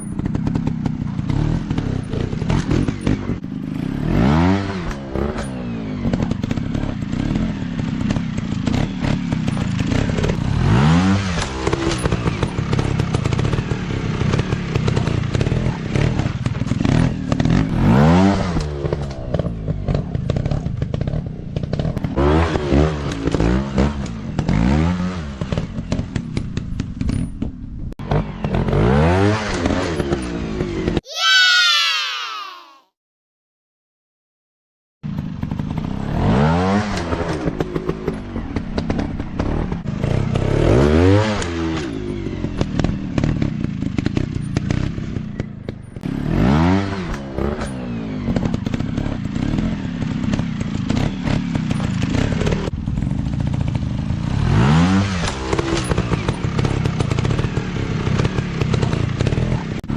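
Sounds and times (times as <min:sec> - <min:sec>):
dirt bike engines revving: 0:00.1 - 0:26.0, 0:53.3 - 0:59.9.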